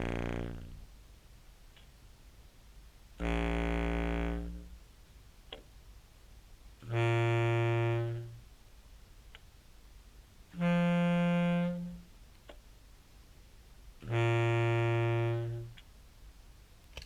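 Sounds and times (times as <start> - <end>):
buzzy fuzz clarinet tones: 0.0 - 0.8, 3.2 - 4.8, 6.8 - 8.4, 10.5 - 12.1, 14.0 - 15.8.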